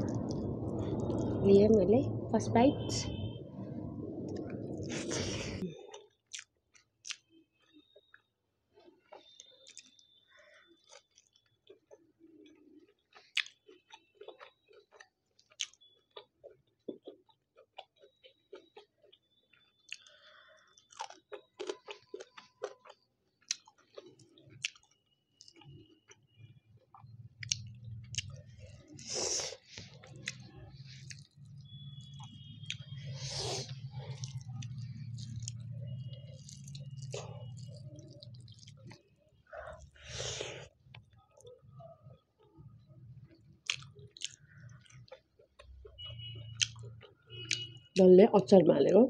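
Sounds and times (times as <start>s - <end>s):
low steady hum: 0.0s - 5.7s
chewing and crunching: 4.3s - 47.8s.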